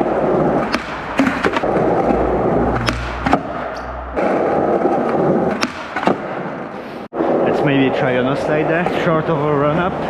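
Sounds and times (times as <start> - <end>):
skateboard clacks: 0.0 - 2.2
skateboard wheels rolling on pavement: 0.0 - 10.0
low rumble: 1.6 - 5.5.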